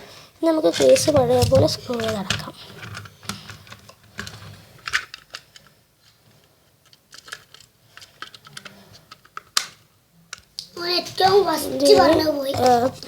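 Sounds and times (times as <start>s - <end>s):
small plastic clicks and taps: 0.7s - 4.4s.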